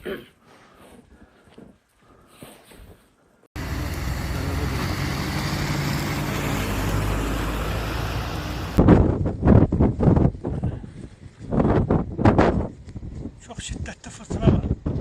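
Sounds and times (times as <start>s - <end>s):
broad rushing noise: 3.6s - 8.8s
loud irregular buffeting: 3.6s - 8.8s
vehicle engine running: 3.6s - 8.8s.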